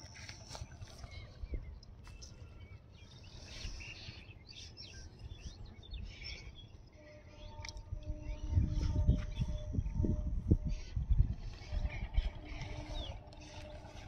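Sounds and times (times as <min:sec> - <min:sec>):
low steady hum: 0:00.0 - 0:14.0
outdoor background noise: 0:00.0 - 0:14.0
small birds chirping: 0:00.0 - 0:14.0.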